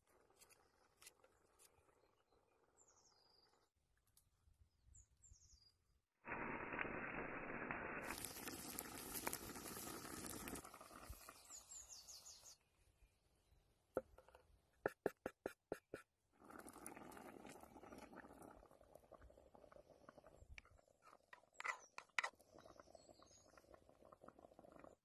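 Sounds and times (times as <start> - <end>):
campfire crackling and hissing: 6.3 - 12.4.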